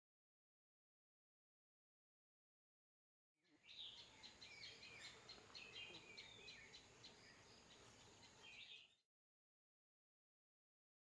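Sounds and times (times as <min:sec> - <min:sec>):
small birds chirping: 0:03.4 - 0:09.0
faint outdoor hiss: 0:03.5 - 0:09.0.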